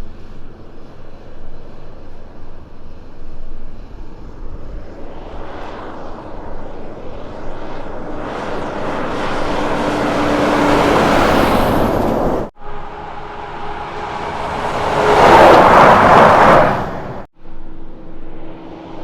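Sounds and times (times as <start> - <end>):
truck engine approaching: 0.0 - 19.0.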